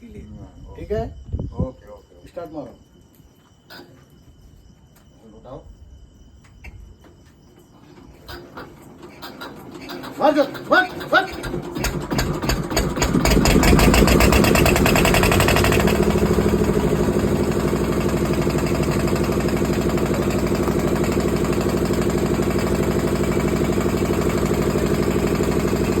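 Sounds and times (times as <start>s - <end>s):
diesel engine starting and idling: 8.0s - 26.0s.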